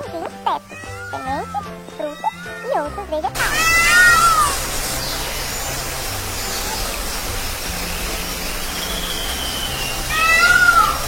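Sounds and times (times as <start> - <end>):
peacock wailing call: 3.4 - 4.7, 9.4 - 11.0
steady rushing noise: 3.4 - 10.2.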